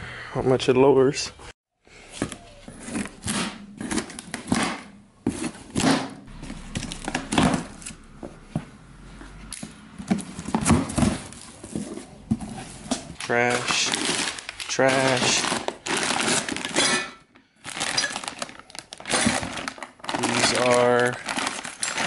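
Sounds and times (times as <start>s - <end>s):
packaging rustling: 5.3s - 8.0s, 10.0s - 16.8s, 17.6s - 22.0s.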